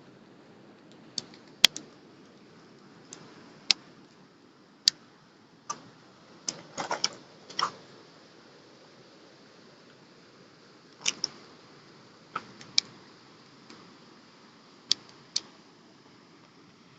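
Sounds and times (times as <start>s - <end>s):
campfire crackling: 0.0s - 16.9s.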